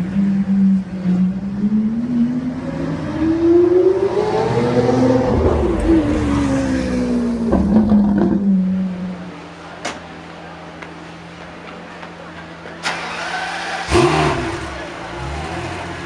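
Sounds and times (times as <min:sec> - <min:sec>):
sports car accelerating past: 0:00.8 - 0:09.2, 0:12.9 - 0:16.0.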